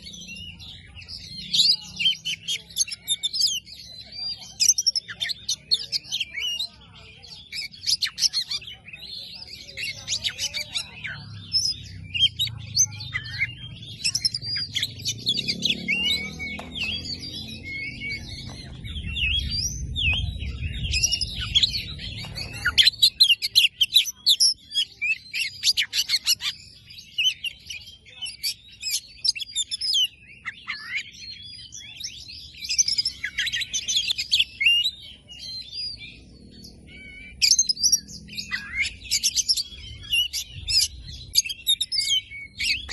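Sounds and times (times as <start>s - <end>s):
bird singing whistles and trills: 0.0s - 42.9s
low rumble: 15.5s - 22.9s.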